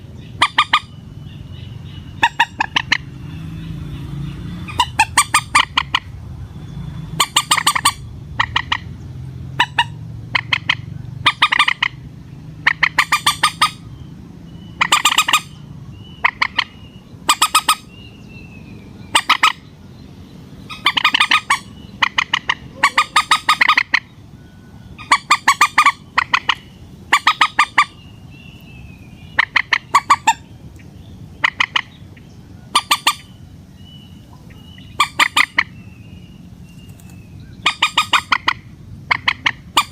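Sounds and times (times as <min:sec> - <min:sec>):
moorhen squawking: 0:00.0 - 0:19.9, 0:20.5 - 0:36.6, 0:37.4 - 0:39.9.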